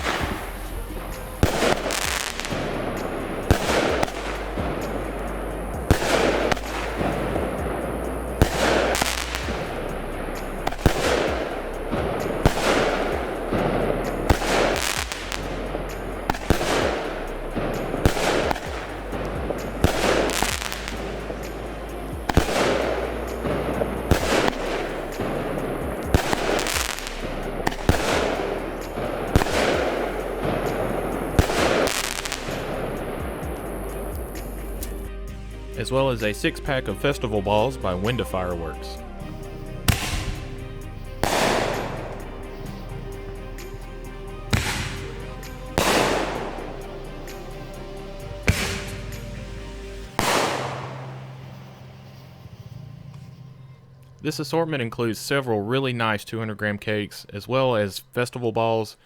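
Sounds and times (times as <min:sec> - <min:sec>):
firework cake firing shots: 0:00.0 - 0:35.0, 0:39.8 - 0:40.6, 0:41.2 - 0:42.9, 0:44.5 - 0:47.8, 0:48.4 - 0:49.3, 0:50.1 - 0:51.6.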